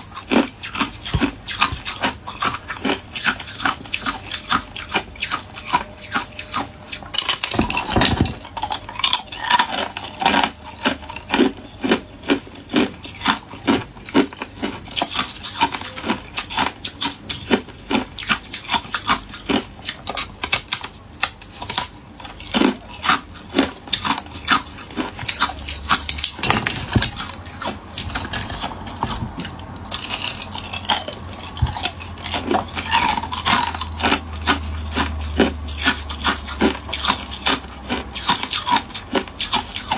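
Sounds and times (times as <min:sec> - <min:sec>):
ice cubes being chewed: 0:00.0 - 0:39.9.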